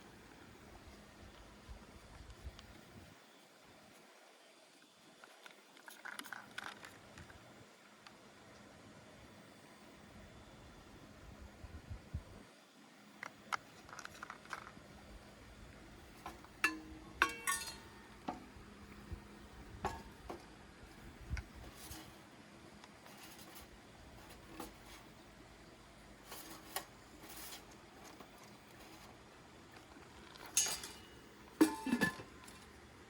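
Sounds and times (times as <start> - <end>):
dishes and cutlery clinking: 16.6 - 18.1, 30.4 - 32.6.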